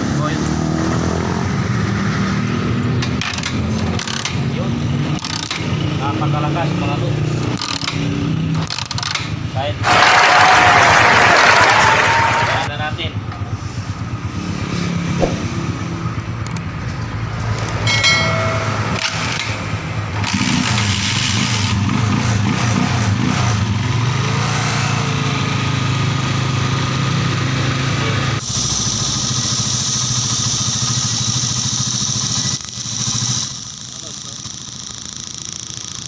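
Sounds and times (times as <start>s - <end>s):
small motorbike engine running: 5.0s - 5.8s, 28.4s - 36.0s.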